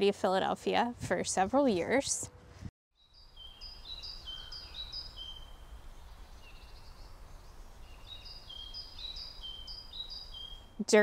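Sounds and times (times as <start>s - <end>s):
songbird whistling: 3.1s - 10.8s.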